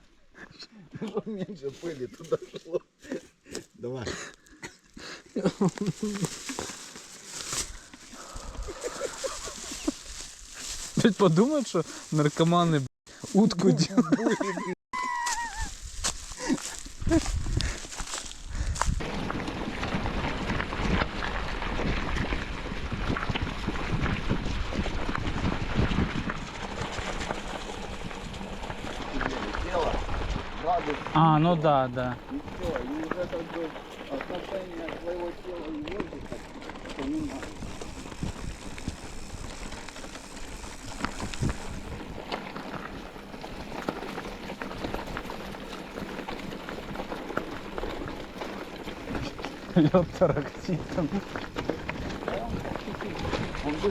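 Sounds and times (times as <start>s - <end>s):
ice rattling in container: 5.6s - 12.6s, 24.8s - 53.9s
wind on microphone: 15.4s - 19.0s, 19.8s - 27.0s, 37.4s - 39.8s, 40.8s - 42.2s.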